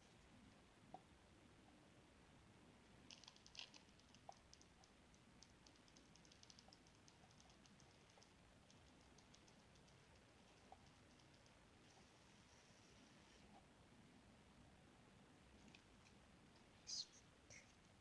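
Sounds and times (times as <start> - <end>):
faint light clicks and ticks: 3.0 - 12.6.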